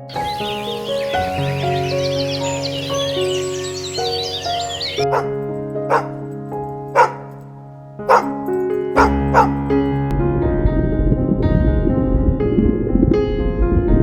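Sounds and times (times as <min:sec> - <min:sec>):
sharp animal calls: 0:00.0 - 0:06.2, 0:07.0 - 0:07.4, 0:08.1 - 0:08.3, 0:09.0 - 0:09.6
background music: 0:00.0 - 0:10.2.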